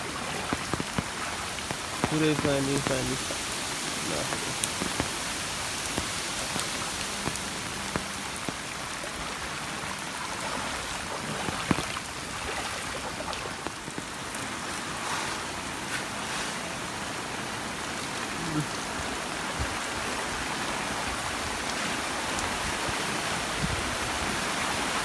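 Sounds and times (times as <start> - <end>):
floodwater running over road: 0.0 - 25.0
heavy rain falling: 0.0 - 25.0
drops ticking: 0.5 - 9.0.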